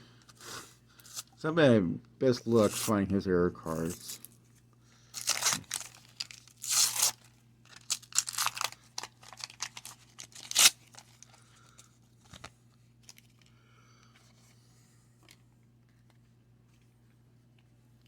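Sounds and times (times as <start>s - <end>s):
wax paper wrapper tearing: 5.2s - 11.4s.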